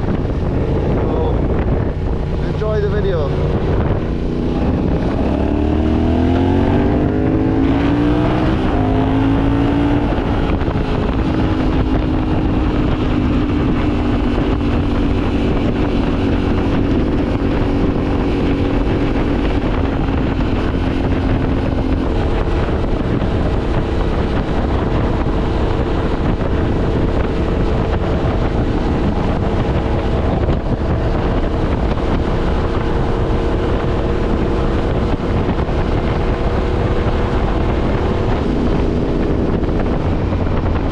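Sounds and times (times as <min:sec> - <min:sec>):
motorcycle engine revving: 0:00.0 - 0:40.9
wind noise on microphone: 0:00.0 - 0:40.9.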